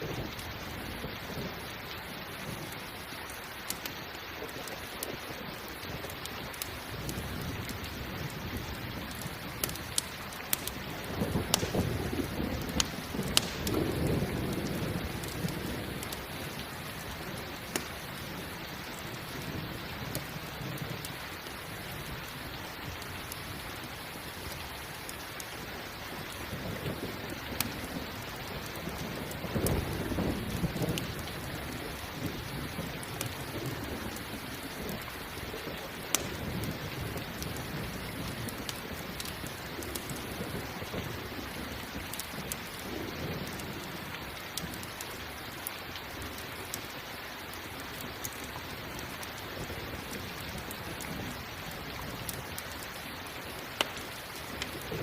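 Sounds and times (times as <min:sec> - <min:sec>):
campfire crackling and popping: 0:00.0 - 0:55.0
steady rain: 0:00.0 - 0:55.0
low rumble of thunder: 0:04.7 - 0:24.7, 0:25.8 - 0:45.0.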